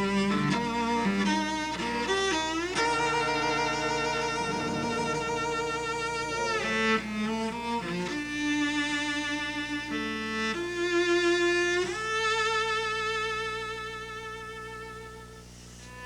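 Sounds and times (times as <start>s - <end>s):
cello playing slow melody: 0.0s - 16.0s.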